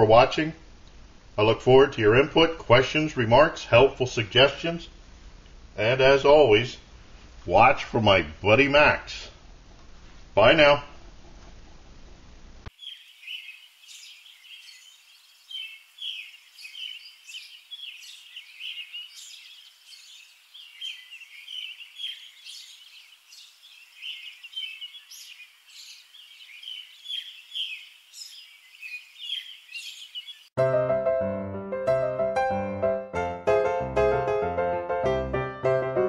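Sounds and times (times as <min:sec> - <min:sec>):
birds chirping: 0:12.7 - 0:30.6.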